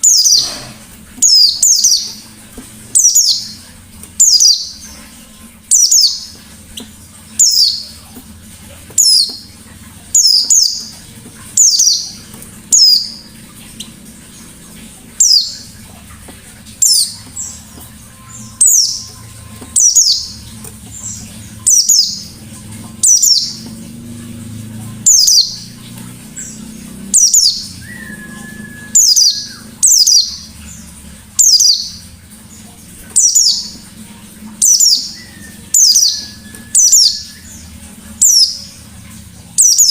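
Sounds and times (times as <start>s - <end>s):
bird singing high notes: 16.8s - 22.4s, 24.9s - 30.6s, 34.6s - 38.8s.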